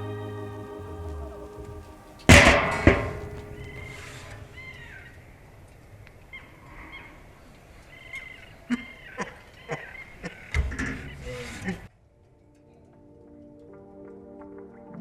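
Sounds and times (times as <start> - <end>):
birds calling: 0.0 - 11.9.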